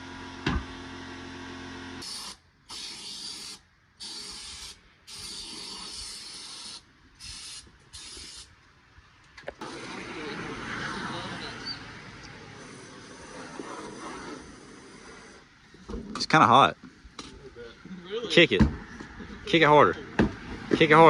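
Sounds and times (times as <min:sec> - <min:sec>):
aerosol can spraying: 0:02.0 - 0:08.5.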